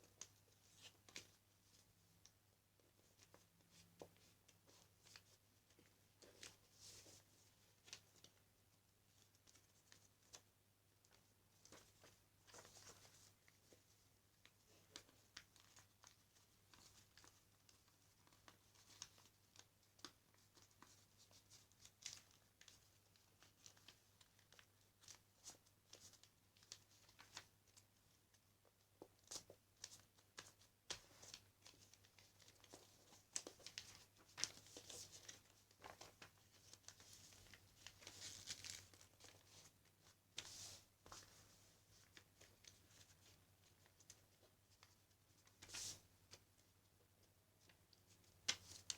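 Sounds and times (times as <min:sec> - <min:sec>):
paper rustling and crinkling: 0:11.1 - 0:28.1, 0:29.0 - 0:46.4.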